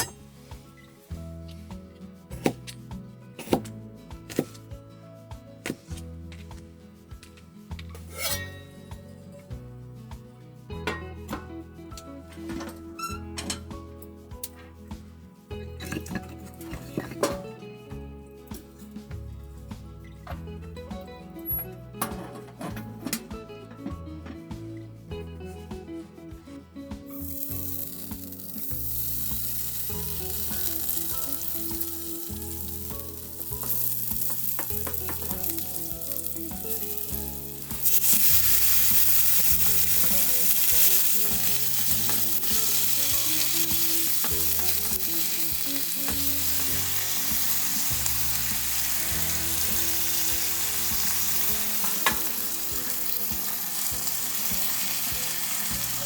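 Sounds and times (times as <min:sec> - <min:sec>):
food sizzling in a pan: 0:08.0 - 0:09.1, 0:27.1 - 0:56.0.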